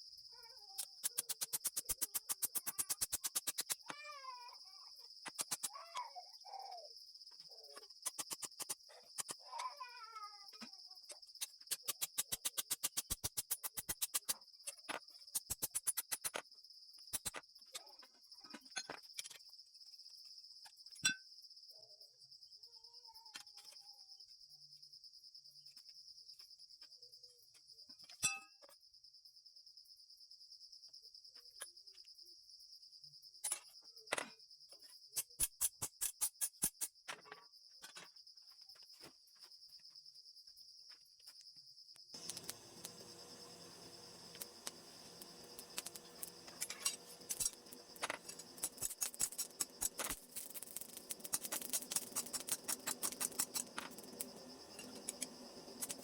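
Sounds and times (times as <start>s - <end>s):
crickets chirping: 0.0s - 56.0s
rapid regular clicking: 0.9s - 3.9s, 11.7s - 14.3s, 42.2s - 56.0s.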